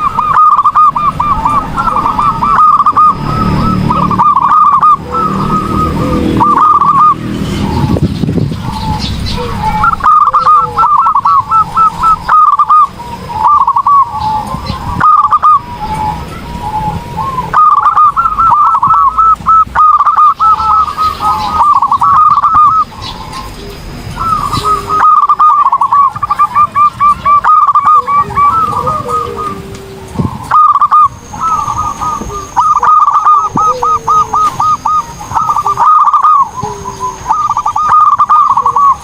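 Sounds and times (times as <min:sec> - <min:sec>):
dove cooing: 0:00.0 - 0:39.0.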